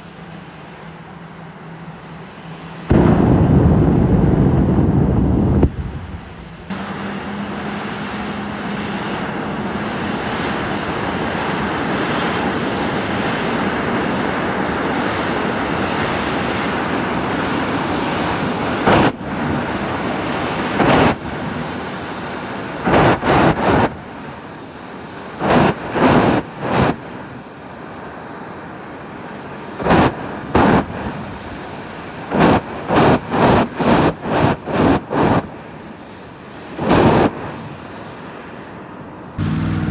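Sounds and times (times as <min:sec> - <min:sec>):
engine roaring: 0:00.0 - 0:39.9
engine revving blips: 0:39.4 - 0:39.9.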